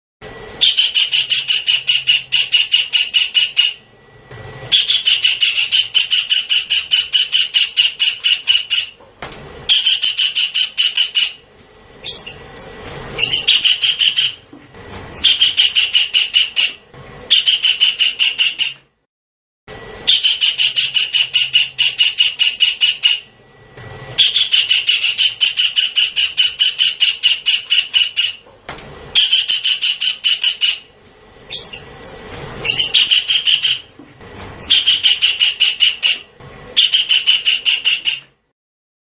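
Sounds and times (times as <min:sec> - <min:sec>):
gliding squealing bird call: 0:00.6 - 0:03.8, 0:04.7 - 0:09.0, 0:09.7 - 0:11.4, 0:12.0 - 0:14.5, 0:15.1 - 0:18.9, 0:20.0 - 0:23.3, 0:24.2 - 0:28.4, 0:29.1 - 0:30.9, 0:31.5 - 0:33.9, 0:34.6 - 0:38.4
kingfisher rattling call: 0:00.6 - 0:03.8, 0:04.7 - 0:09.0, 0:09.7 - 0:11.4, 0:12.0 - 0:14.4, 0:15.1 - 0:18.8, 0:20.1 - 0:23.3, 0:24.2 - 0:28.4, 0:29.2 - 0:30.9, 0:31.5 - 0:33.9, 0:34.6 - 0:38.3.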